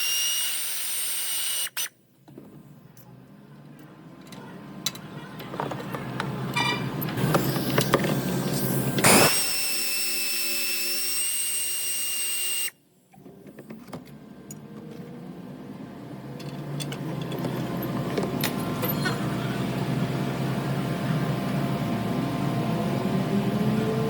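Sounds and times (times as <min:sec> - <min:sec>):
power tool whining: 0:00.0 - 0:01.9, 0:07.2 - 0:12.8.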